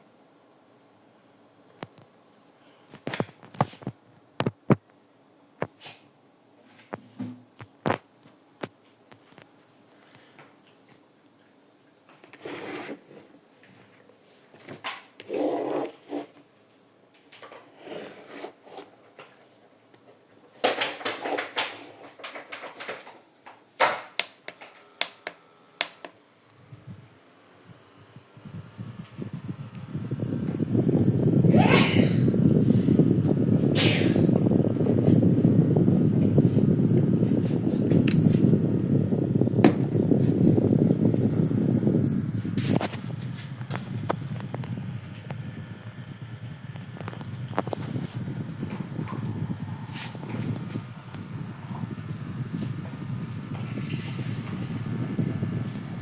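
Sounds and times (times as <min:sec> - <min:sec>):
objects rustling and scraping: 0:12.1 - 0:16.5, 0:17.2 - 0:23.3.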